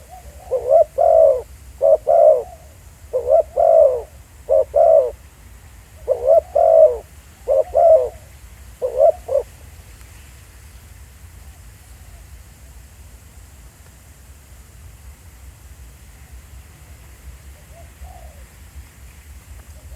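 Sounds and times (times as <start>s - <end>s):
dove cooing: 0.0s - 5.2s, 6.0s - 9.5s, 17.6s - 18.4s.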